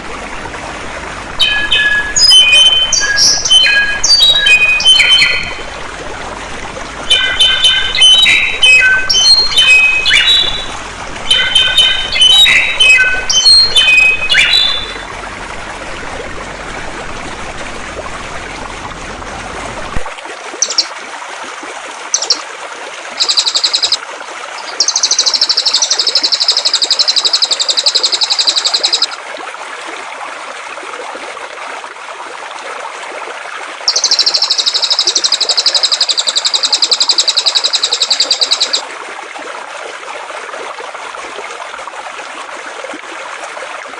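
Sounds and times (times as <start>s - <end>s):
flowing water: 0.0s - 43.9s
bird high rapid trills: 1.4s - 5.7s, 7.1s - 15.0s, 22.1s - 22.4s, 23.2s - 24.0s, 24.6s - 29.2s, 33.9s - 38.8s.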